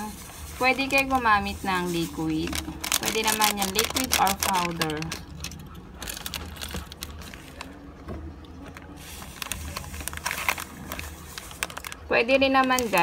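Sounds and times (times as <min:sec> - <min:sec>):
foil sachet crinkling: 0:00.0 - 0:08.0, 0:08.6 - 0:13.0
powder shaken out: 0:00.1 - 0:05.3.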